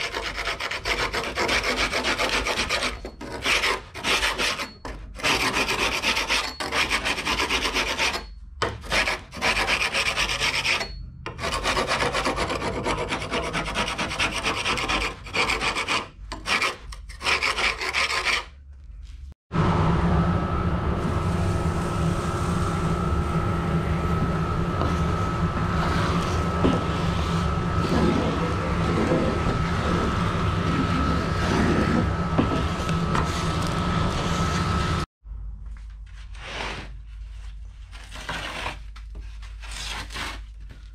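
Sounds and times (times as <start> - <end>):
hand scraper scraping carpet: 0.0 - 10.8, 30.7 - 34.8, 37.9 - 40.4
mechanical drone with whine: 19.5 - 35.1.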